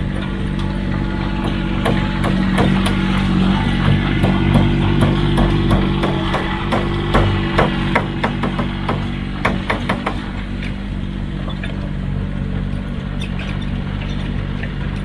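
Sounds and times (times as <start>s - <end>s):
heavy machine engine running: 0.0s - 15.0s
sharp knocks: 1.2s - 10.4s.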